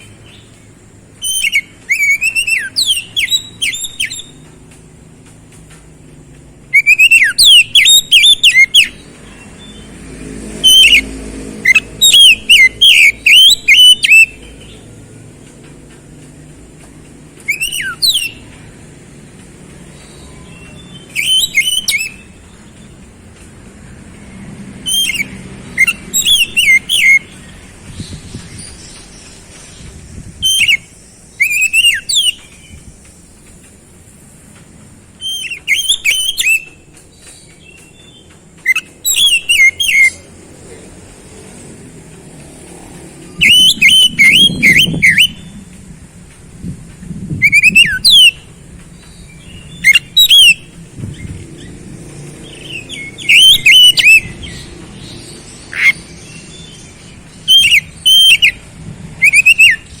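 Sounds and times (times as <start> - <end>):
bird singing whistled notes: 0.0 - 4.6, 6.6 - 9.9, 10.5 - 14.9, 17.4 - 18.6, 19.7 - 23.1, 24.8 - 33.3, 35.1 - 40.3, 43.3 - 45.8, 47.4 - 60.0.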